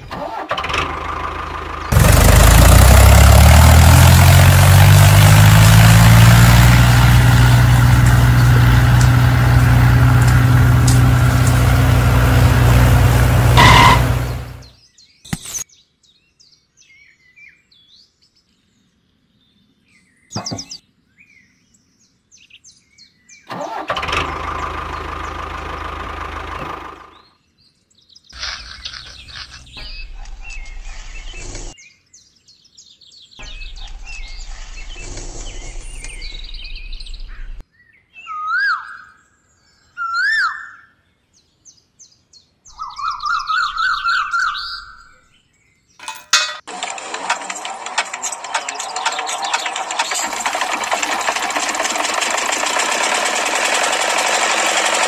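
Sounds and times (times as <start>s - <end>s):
small engine running: 0.1s - 14.7s, 23.5s - 27.2s, 46.7s - 55.0s
bird chirps: 13.6s - 23.5s, 27.1s - 46.1s.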